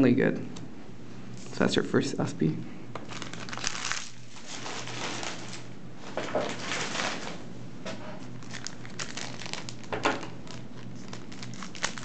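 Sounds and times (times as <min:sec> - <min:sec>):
foil wrapper crinkling: 0:03.0 - 0:07.4, 0:08.3 - 0:12.0.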